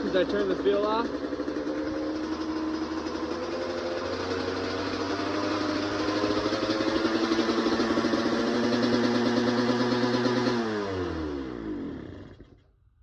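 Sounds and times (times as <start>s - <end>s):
two-stroke engine idling: 0.0s - 12.6s.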